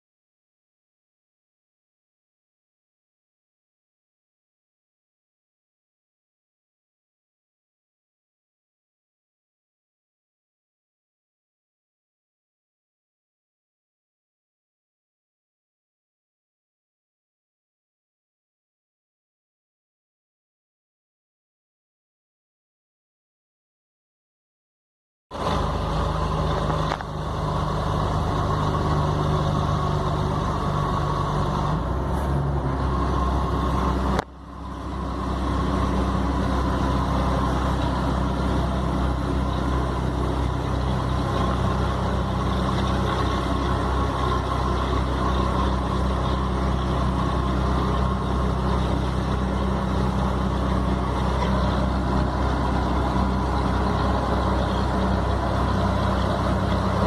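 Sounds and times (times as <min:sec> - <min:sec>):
truck diesel engine running: 0:25.3 - 0:57.0.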